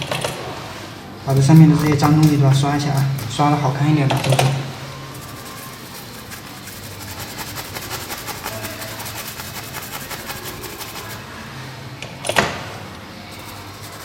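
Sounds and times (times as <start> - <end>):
small brush scrubbing: 4.5 - 11.5, 13.2 - 14.0.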